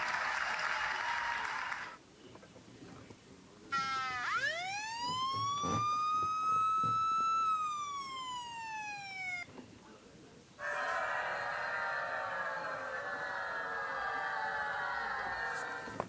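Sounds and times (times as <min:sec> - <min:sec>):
steady buzzing: 0:03.7 - 0:09.4
siren-like wail: 0:03.7 - 0:09.5.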